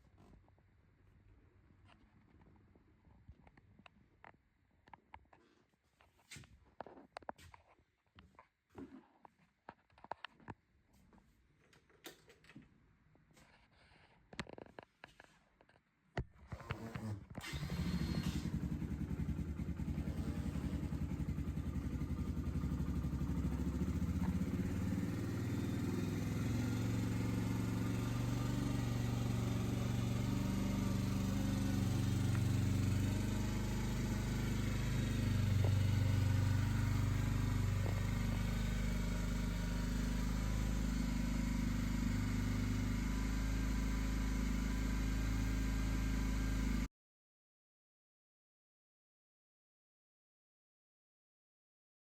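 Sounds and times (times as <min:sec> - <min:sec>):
motorcycle engine idling: 0:17.5 - 0:46.9.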